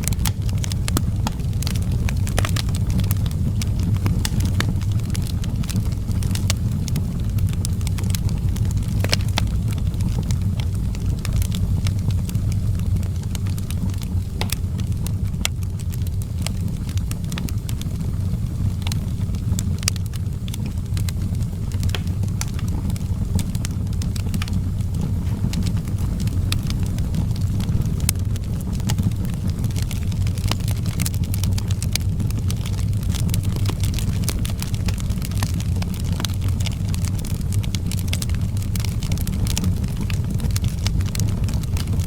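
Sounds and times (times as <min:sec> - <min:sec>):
wood fire crackling and popping: 0:00.0 - 0:42.0.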